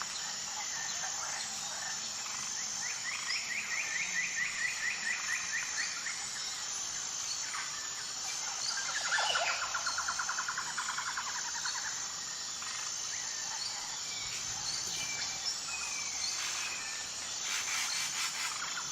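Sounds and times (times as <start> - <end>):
high insect buzz: 0.0 - 18.9
birds calling and chirping: 12.6 - 18.9.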